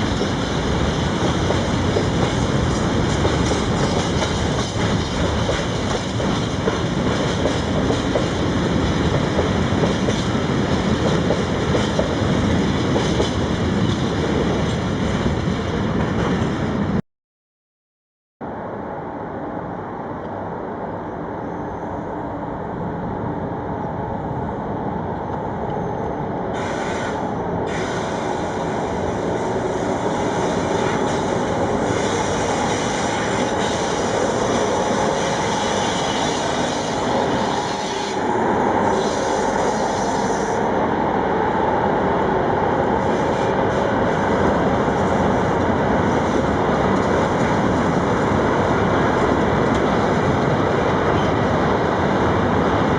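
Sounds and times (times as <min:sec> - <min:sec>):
train wheels rumbling on rails: 0:00.0 - 0:17.0, 0:24.2 - 0:52.9.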